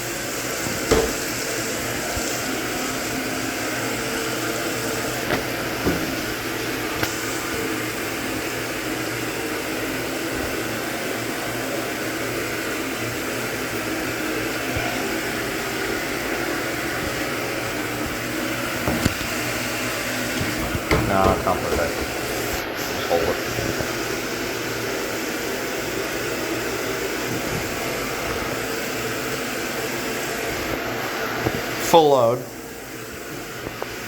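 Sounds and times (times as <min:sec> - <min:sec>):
washing machine filling with water: 0:00.0 - 0:34.0.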